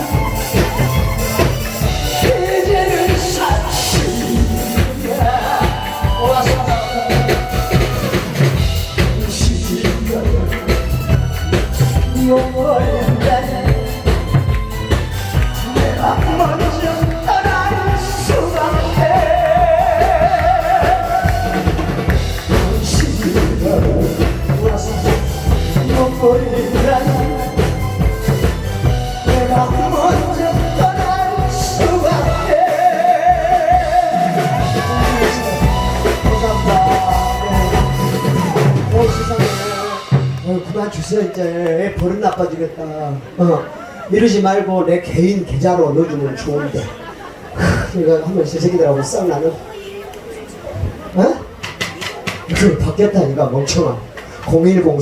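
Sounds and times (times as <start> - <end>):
person singing with vibrato: 0.0 - 41.8
drum kit beat: 0.0 - 42.2, 51.6 - 52.8.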